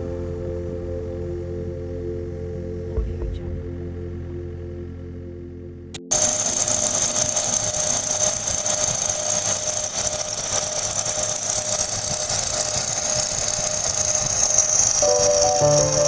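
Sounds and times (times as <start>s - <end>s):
high steady whine: 0.0s - 16.0s
machinery hissing: 6.1s - 16.0s.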